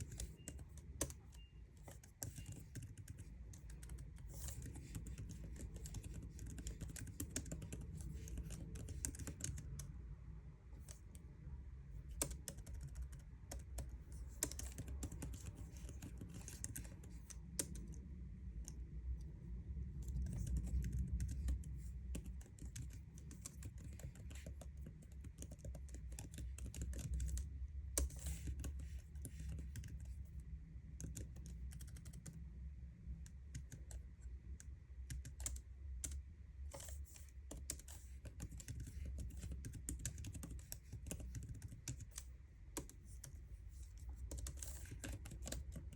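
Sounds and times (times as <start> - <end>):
keyboard typing clicks: 0.0 - 9.9, 12.0 - 18.0, 20.0 - 27.4, 31.0 - 32.4, 35.1 - 45.9.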